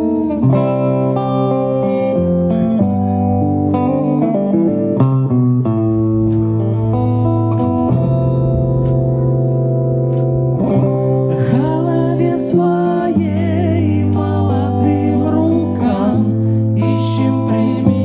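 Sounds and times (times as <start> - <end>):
person singing: 11.3 - 18.0.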